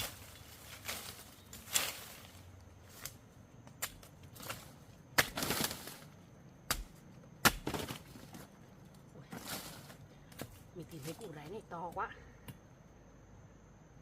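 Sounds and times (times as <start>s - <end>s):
soil scraping: 0.0s - 11.9s
digging tool striking earth: 3.7s - 6.0s, 6.6s - 8.4s.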